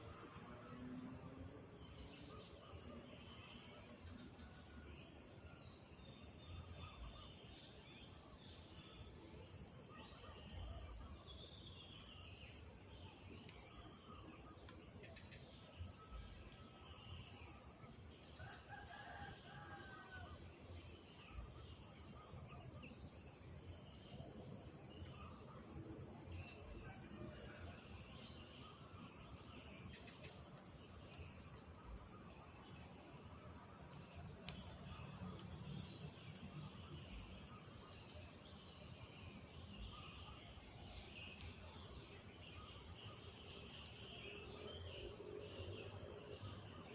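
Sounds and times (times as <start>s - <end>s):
insects chorus: 0.0s - 46.9s
rooster crowing: 18.6s - 20.3s.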